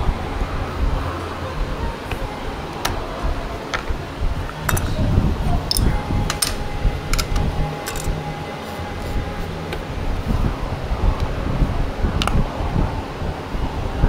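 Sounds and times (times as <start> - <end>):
faint steady whine: 0.0 - 14.0
steady low rumble: 0.0 - 14.0
metal tools clinking: 4.5 - 5.0, 5.7 - 8.4.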